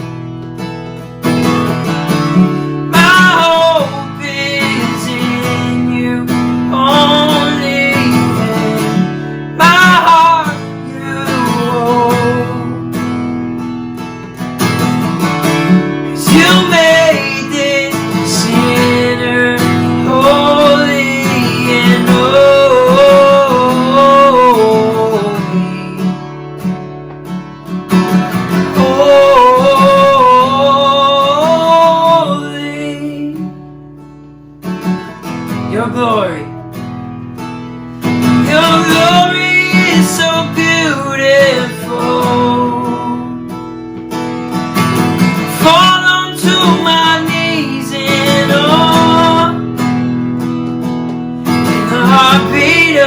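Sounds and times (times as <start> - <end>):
acoustic guitar strumming: 0.0 - 53.0
person singing: 2.4 - 12.8, 16.1 - 26.1, 28.4 - 33.5, 35.6 - 36.6, 38.3 - 43.5, 45.2 - 49.8, 51.5 - 53.0.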